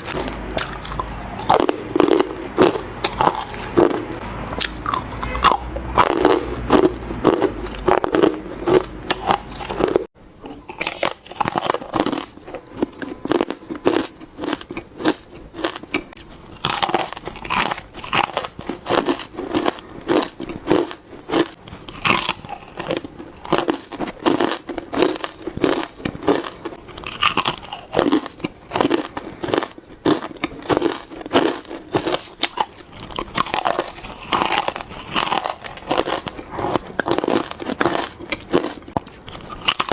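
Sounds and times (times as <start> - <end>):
ice crunching in bites: 16.6 - 39.9.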